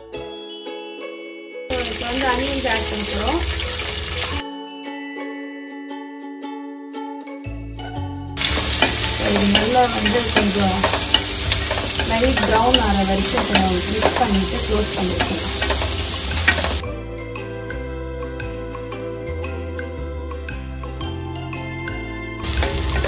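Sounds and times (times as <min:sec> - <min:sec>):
onions sizzling in hot oil: 0:01.7 - 0:04.4, 0:08.4 - 0:16.8, 0:22.4 - 0:23.0
spatula scraping pan: 0:08.4 - 0:16.8.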